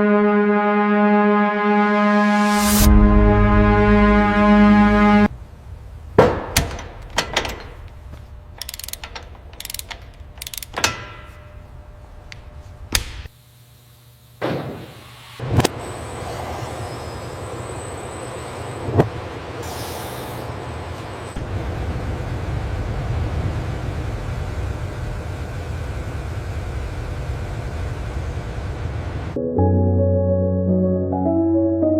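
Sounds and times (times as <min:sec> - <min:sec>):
brass music: 0:00.0 - 0:05.3
steady noise with high whine: 0:02.8 - 0:29.4
sharp mechanical clicks and clunks: 0:06.2 - 0:13.3.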